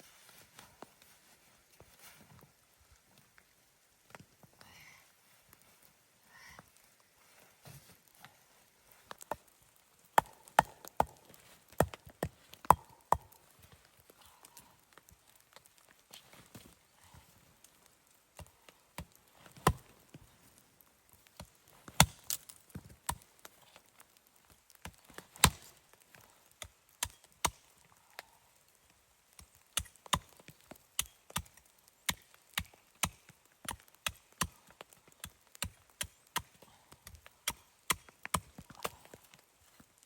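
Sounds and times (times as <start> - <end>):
axe chopping wood: 10.2 - 11.2, 11.8 - 13.3, 25.4 - 25.7, 37.4 - 38.9.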